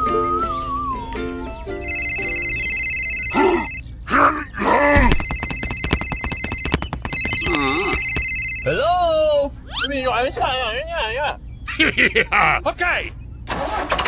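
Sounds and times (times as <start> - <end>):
telephone ringing: 1.8 - 3.8, 5.1 - 8.9.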